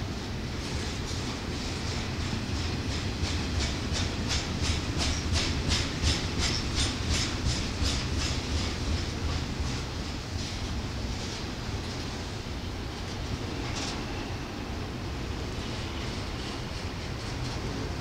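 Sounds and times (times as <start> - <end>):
clickety-clack of train wheels: 0.0 - 18.0
freight train rumbling past: 0.0 - 18.0.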